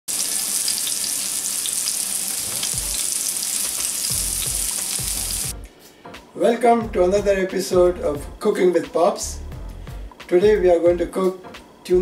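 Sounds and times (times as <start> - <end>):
fish sizzling in a grill pan: 0.1 - 5.5.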